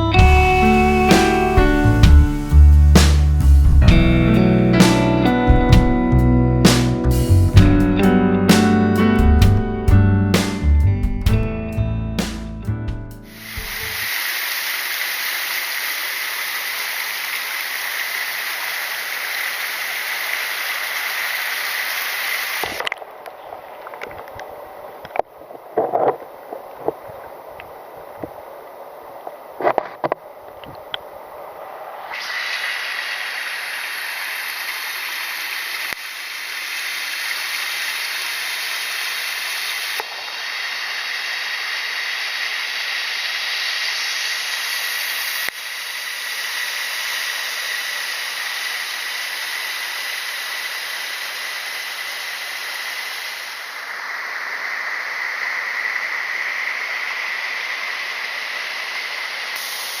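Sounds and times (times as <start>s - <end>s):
waterfall rushing and splashing: 13.4s - 22.8s, 32.1s - 60.0s.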